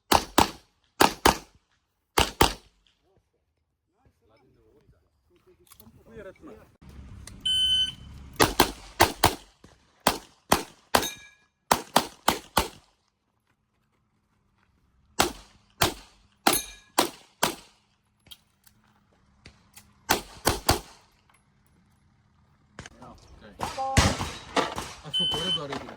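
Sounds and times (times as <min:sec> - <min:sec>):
rapid gunshots: 0:00.0 - 0:01.6, 0:02.2 - 0:02.7, 0:08.4 - 0:11.1, 0:11.7 - 0:12.9, 0:15.2 - 0:17.8, 0:20.1 - 0:21.1.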